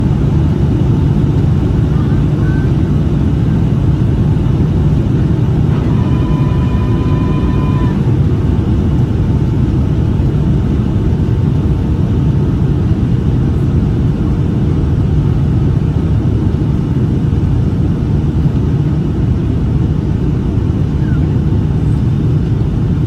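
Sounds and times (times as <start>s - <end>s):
airplane cabin rumble: 0.0s - 23.0s.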